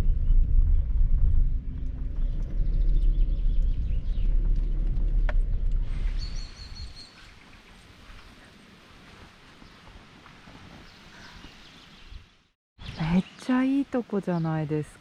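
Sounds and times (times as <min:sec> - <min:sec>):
bird chirping: 0:00.0 - 0:04.8, 0:05.9 - 0:08.5, 0:10.8 - 0:15.0
vehicle rumbling at low speed: 0:00.0 - 0:09.8.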